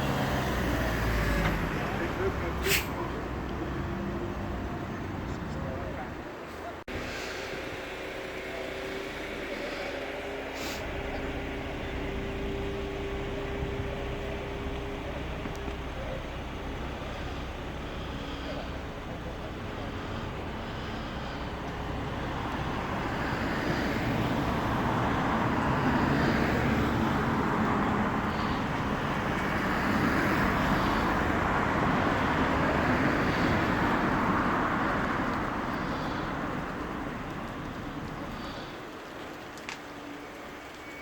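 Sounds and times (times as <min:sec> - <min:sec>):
tram passing by: 0:00.0 - 0:39.1.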